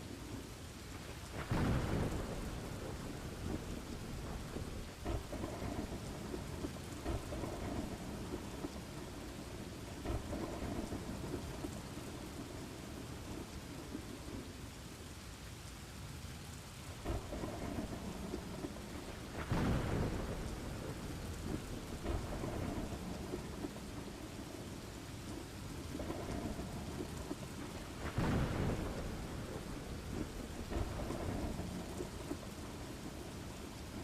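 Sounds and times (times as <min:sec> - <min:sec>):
steady rain: 0:00.0 - 0:34.0
rolling thunder: 0:01.1 - 0:14.4, 0:17.0 - 0:34.0
sharp thunder clap: 0:01.4 - 0:09.1, 0:10.0 - 0:11.7, 0:17.0 - 0:24.3, 0:25.9 - 0:33.5.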